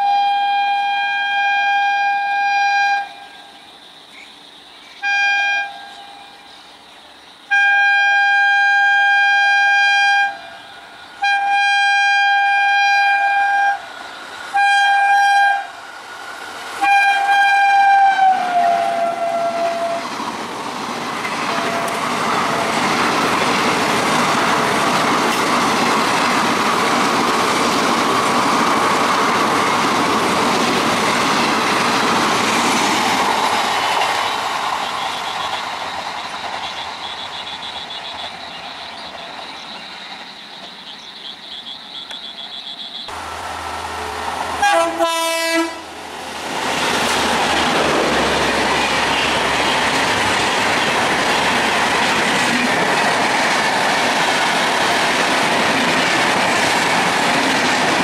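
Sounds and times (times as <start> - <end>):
train horn blasts: 0.0 - 3.5, 5.0 - 6.4, 7.5 - 13.9, 14.5 - 15.8, 16.8 - 20.1, 21.5 - 22.9, 44.6 - 46.0
train coaches rushing and clattering: 8.3 - 58.0.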